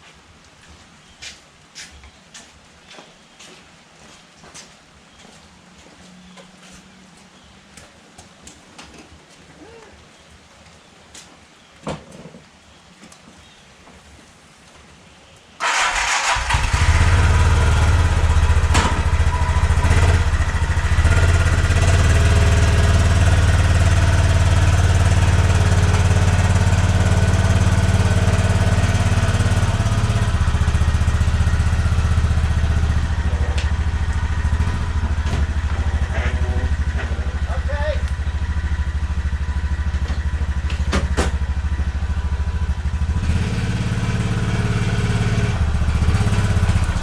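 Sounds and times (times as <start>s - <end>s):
car engine starting and rumbling: 15.6s - 47.0s.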